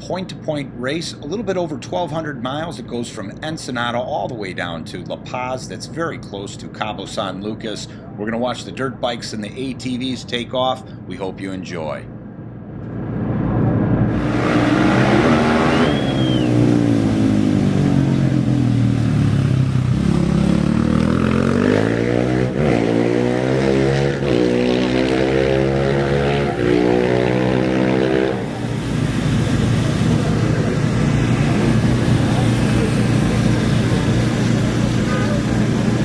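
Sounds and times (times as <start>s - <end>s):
race vehicle engine accelerating: 12.9s - 36.0s
high whistle-like tone: 14.6s - 17.0s.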